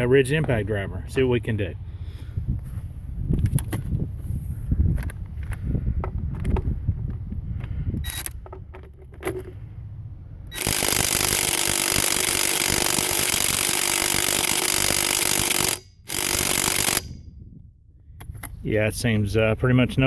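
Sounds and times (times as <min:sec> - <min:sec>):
impact driver hammering: 0:10.5 - 0:17.2.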